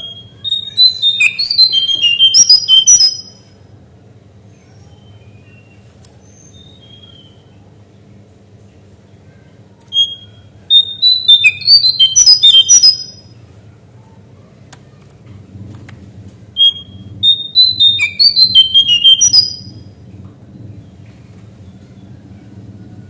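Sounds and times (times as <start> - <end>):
bird singing whistled notes: 0.0 - 3.5, 4.8 - 7.5, 9.9 - 13.3, 16.6 - 19.8
faint steady hum: 0.0 - 23.0.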